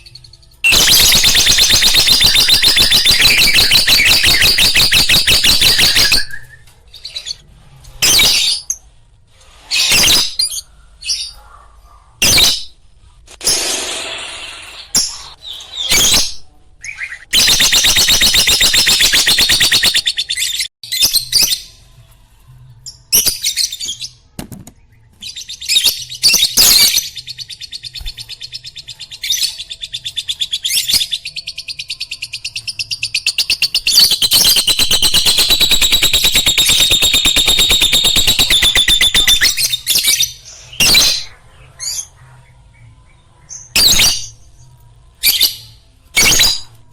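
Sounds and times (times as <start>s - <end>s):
lovebird chirping: 0.0s - 7.4s, 29.4s - 42.2s
fast bird trill: 0.7s - 6.5s, 17.4s - 20.6s, 33.2s - 39.9s.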